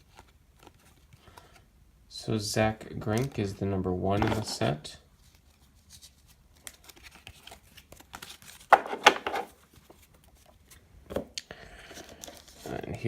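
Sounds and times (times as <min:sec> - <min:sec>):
cards being flipped: 0:04.2 - 0:04.6, 0:05.3 - 0:11.3
rustle of cards: 0:04.2 - 0:10.9, 0:11.8 - 0:13.0.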